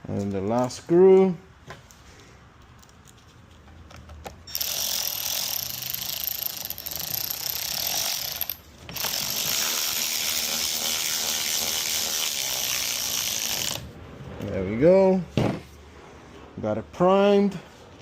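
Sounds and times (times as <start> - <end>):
ratchet tightening screw: 4.5 - 13.8.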